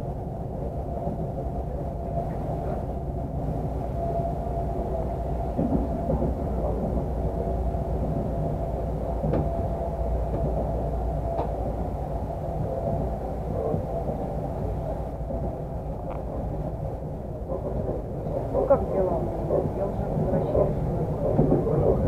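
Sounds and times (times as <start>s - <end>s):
train carriage rumble: 0.0s - 22.0s
faint clicks over rails: 10.3s - 11.8s.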